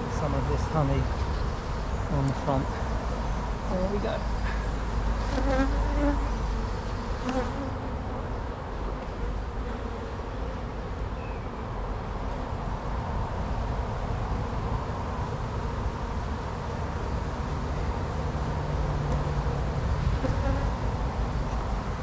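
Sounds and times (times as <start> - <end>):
bees buzzing: 0.0 - 10.8.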